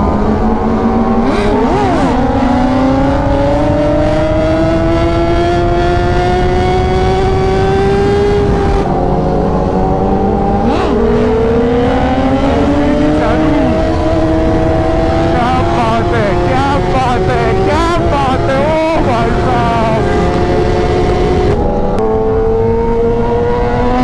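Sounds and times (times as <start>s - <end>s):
wind rushing: 0.0s - 22.8s
motorcycle engine accelerating: 0.0s - 24.0s.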